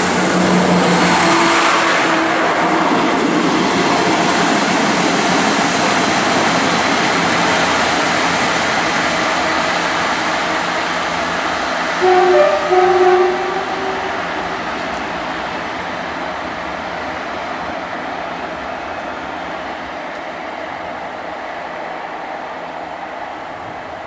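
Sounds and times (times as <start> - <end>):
diesel train approaching: 0.0 - 24.0
train passing: 0.0 - 24.0
train horn: 12.0 - 15.4.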